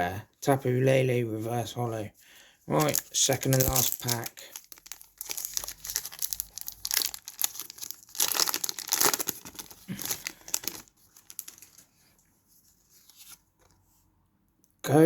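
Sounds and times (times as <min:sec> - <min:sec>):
foil wrapper tearing and crinkling: 0:02.7 - 0:11.8.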